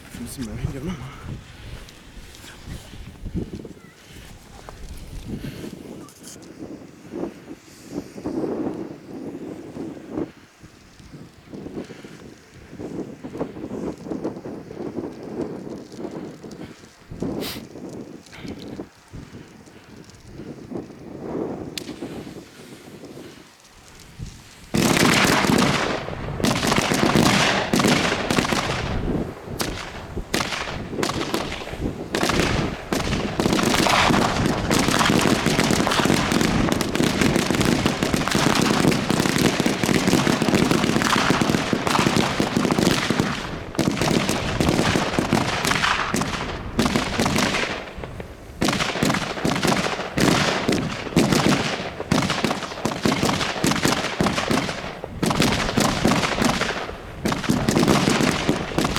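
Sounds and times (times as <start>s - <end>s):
firecracker bangs: 21.7s - 58.9s.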